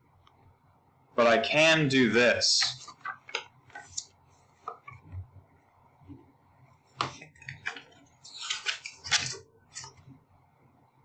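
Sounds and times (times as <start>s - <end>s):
rustling and clicking handling: 7.0s - 10.1s.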